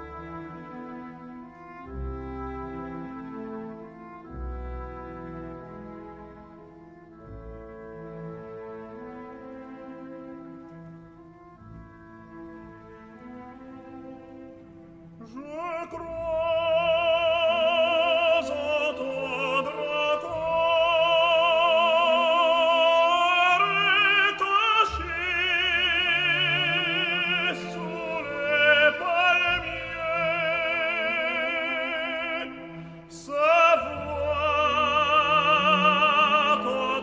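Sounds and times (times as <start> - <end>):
orchestral accompaniment: 0.0 - 37.0
operatic voice singing: 15.3 - 37.0.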